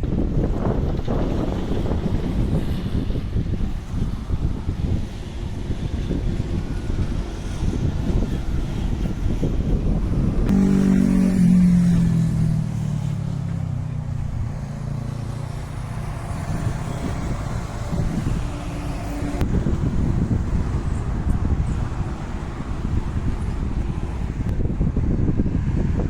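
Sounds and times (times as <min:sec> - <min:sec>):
diesel engine rumbling: 0:00.0 - 0:25.5.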